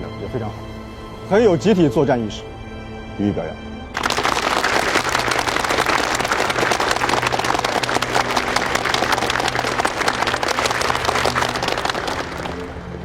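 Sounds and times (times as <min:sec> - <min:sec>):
group of people applauding: 0:03.9 - 0:13.0.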